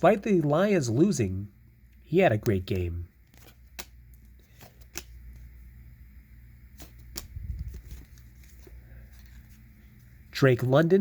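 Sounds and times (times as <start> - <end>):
trading cards clicking: 2.4 - 5.5, 6.8 - 9.4.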